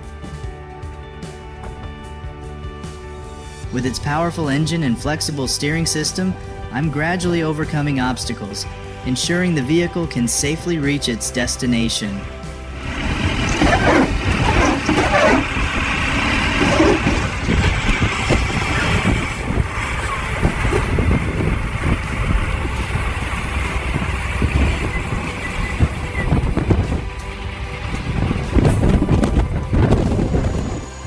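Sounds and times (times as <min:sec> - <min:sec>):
heavy truck engine rumbling: 0:10.4 - 0:31.0
knocks and clatter: 0:12.7 - 0:23.6.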